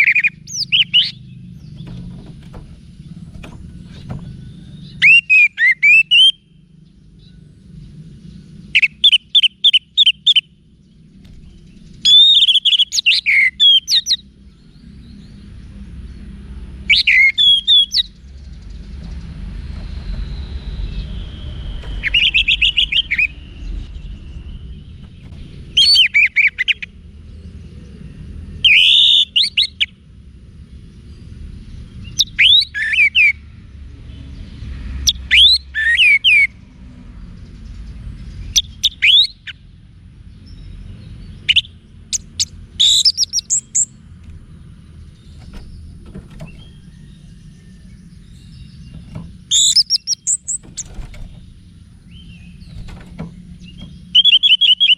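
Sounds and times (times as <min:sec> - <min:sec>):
thrush singing whistled notes: 0:00.0 - 0:02.2, 0:03.3 - 0:06.6, 0:11.8 - 0:15.4, 0:16.8 - 0:18.8, 0:19.6 - 0:27.0, 0:28.6 - 0:30.0, 0:32.0 - 0:33.4, 0:35.0 - 0:36.6, 0:38.4 - 0:39.6, 0:40.5 - 0:44.0, 0:45.0 - 0:54.9
steady low rumble: 0:00.0 - 0:05.6, 0:06.4 - 0:13.1, 0:17.6 - 0:28.7, 0:36.5 - 0:54.9.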